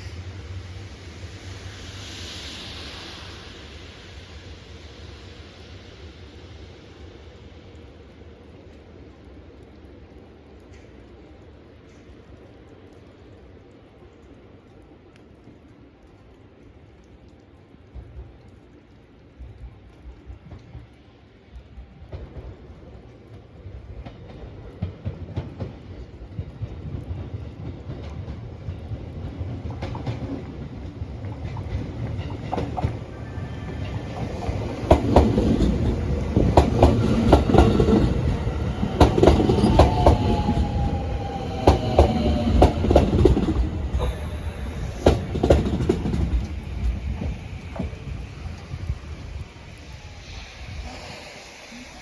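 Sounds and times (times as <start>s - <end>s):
electric train approaching: 0.0s - 10.6s, 20.0s - 52.0s
train wheels clacking over rail joints: 24.0s - 49.0s.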